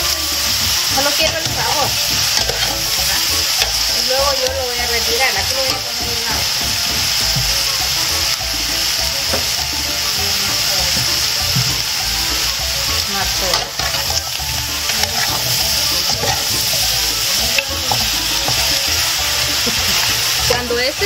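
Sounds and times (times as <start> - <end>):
food sizzling in oil: 0.0 - 21.0
metal spoon scraping a pan: 0.5 - 7.4, 12.4 - 20.8.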